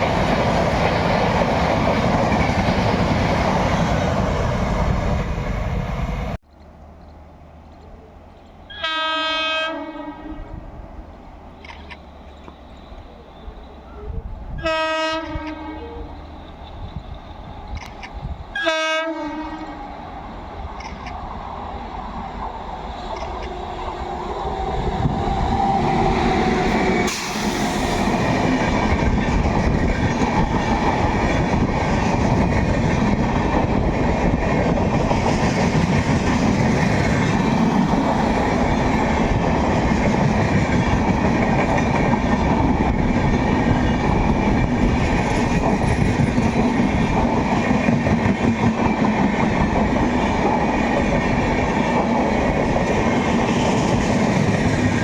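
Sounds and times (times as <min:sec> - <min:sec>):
train wheels clattering on rail: 0:00.0 - 0:06.0, 0:22.4 - 0:55.0
locomotive horn blast: 0:08.7 - 0:10.6, 0:14.0 - 0:16.1, 0:18.6 - 0:19.8.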